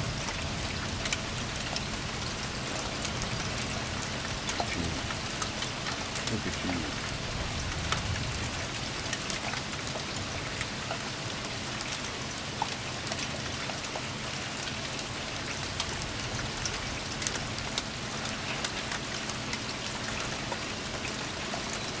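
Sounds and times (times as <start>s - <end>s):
sharp ticks of raindrops: 0.0s - 22.0s
steady rain falling: 0.0s - 22.0s.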